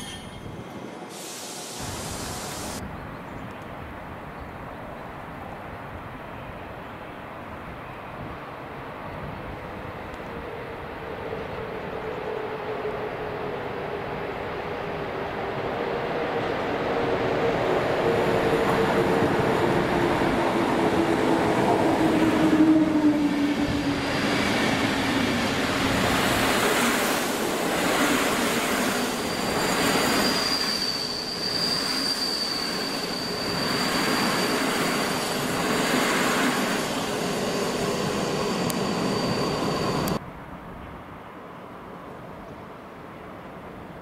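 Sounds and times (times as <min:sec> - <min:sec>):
train rumbling past: 0:09.2 - 0:40.5
high wheel squeal: 0:23.5 - 0:40.2.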